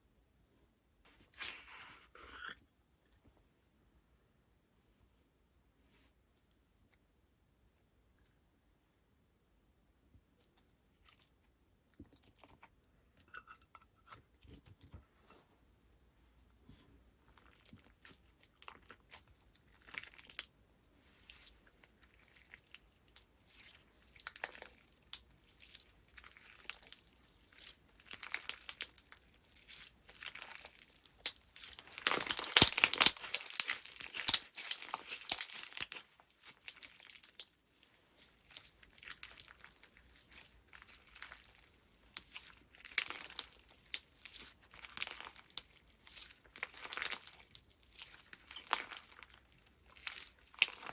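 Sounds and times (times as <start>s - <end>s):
slime crackling when squeezed: 24.2s - 37.5s, 38.2s - 41.6s, 42.2s - 50.9s.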